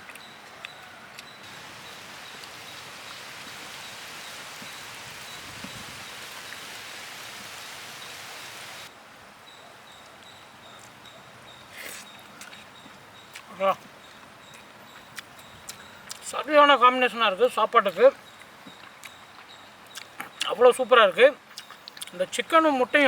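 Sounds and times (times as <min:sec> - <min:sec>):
steady hiss: 0:01.4 - 0:09.3.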